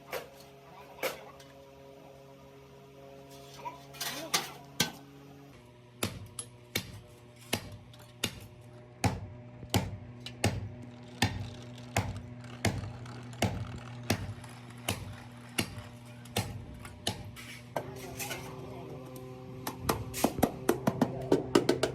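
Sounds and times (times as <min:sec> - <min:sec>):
hammer striking sheet steel: 0:06.0 - 0:18.4.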